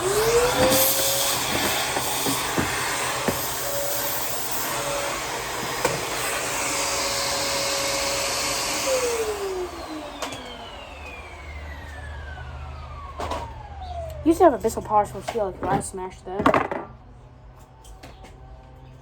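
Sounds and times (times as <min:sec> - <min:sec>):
vacuum motor whine spinning down: 0:00.0 - 0:14.9
upright vacuum cleaner running: 0:00.0 - 0:15.9.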